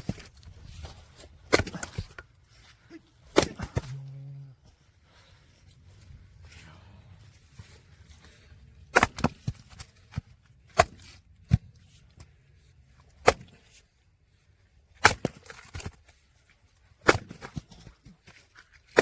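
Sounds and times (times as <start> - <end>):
axe cracking logs: 0.0 - 2.3, 3.2 - 4.0, 8.8 - 12.3, 13.0 - 13.8, 14.9 - 16.2, 17.0 - 19.0.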